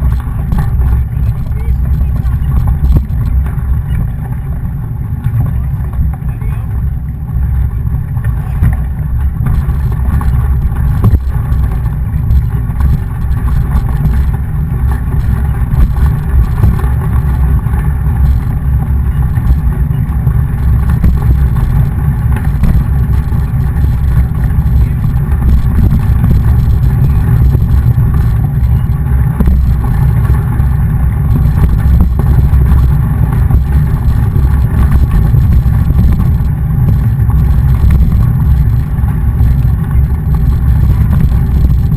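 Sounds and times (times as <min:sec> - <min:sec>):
mountain bike rumble: 0:00.0 - 0:41.9
wind buffeting microphone: 0:00.0 - 0:41.9.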